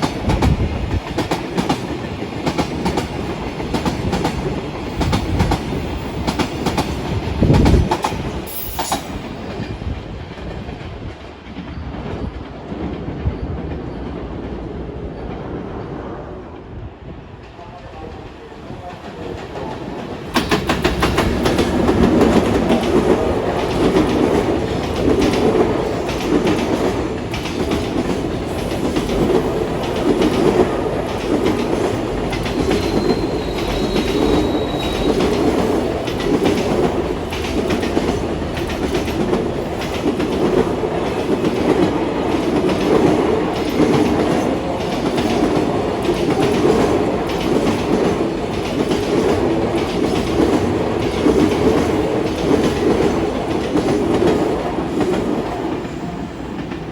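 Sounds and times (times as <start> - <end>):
freight train wheels clattering: 0.0 - 14.6, 18.9 - 56.9
faint wheel squeal: 32.6 - 35.4.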